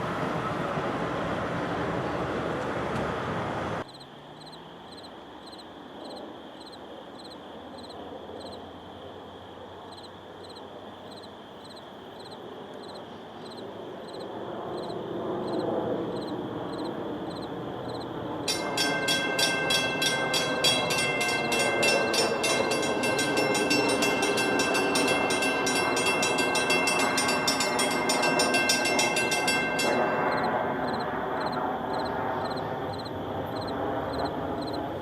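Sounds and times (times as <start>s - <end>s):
loud rushing train: 0.0s - 3.9s, 12.9s - 35.0s
low rumble of approaching train: 0.0s - 35.0s.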